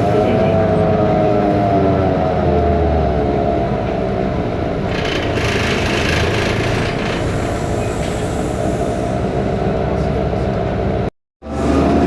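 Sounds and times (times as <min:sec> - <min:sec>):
bus engine whining: 0:00.0 - 0:12.0
hiss: 0:07.0 - 0:09.6.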